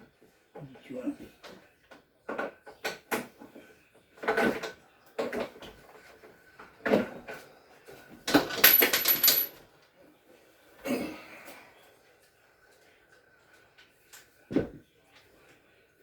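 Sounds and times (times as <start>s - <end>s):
tools knocking and rattling: 8.6s - 9.5s.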